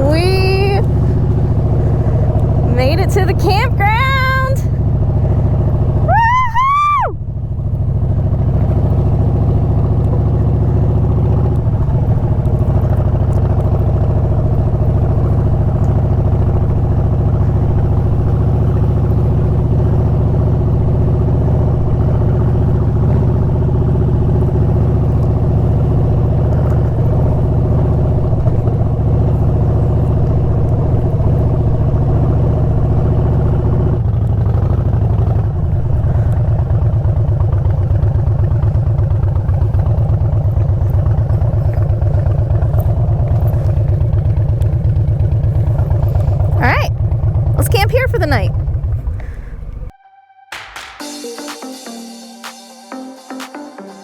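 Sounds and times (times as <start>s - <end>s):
motorcycle engine rumbling: 0.0s - 50.0s
short rising and falling whoop: 6.0s - 7.3s.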